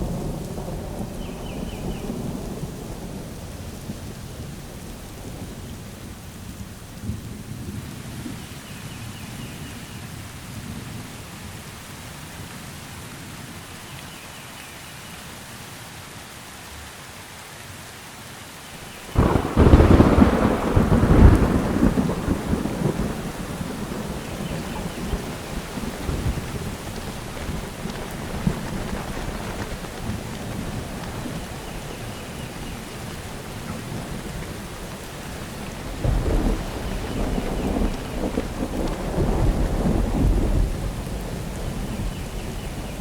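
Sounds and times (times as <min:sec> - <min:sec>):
thunder rumbling: 0:00.0 - 0:08.4, 0:19.0 - 0:43.0
steady rain: 0:00.0 - 0:43.0.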